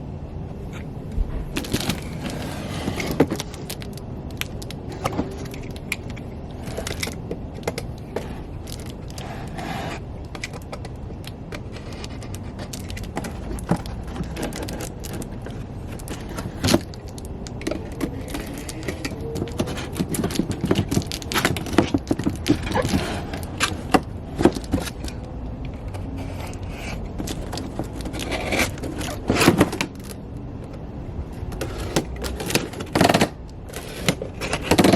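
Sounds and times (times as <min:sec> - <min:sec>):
clicks knocks and rustles: 0:00.7 - 0:30.8
cardboard box being opened: 0:11.6 - 0:25.3.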